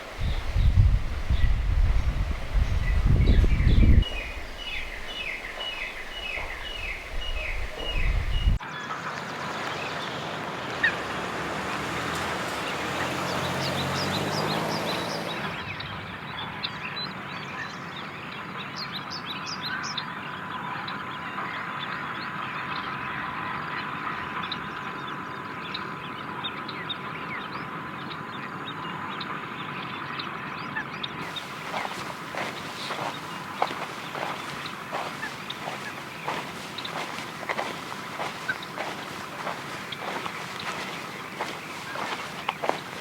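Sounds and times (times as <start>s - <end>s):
small birds chirping: 0.0s - 8.6s, 31.2s - 43.0s.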